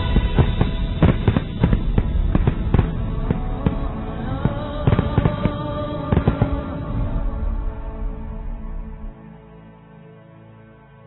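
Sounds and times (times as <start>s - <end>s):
fireworks bangs: 0.0s - 6.8s
music playing: 0.0s - 11.0s.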